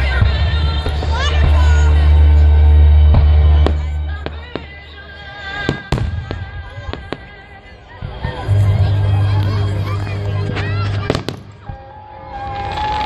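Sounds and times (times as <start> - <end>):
music playing: 0.0 - 13.0
fireworks bangs: 3.1 - 7.4, 10.4 - 13.0.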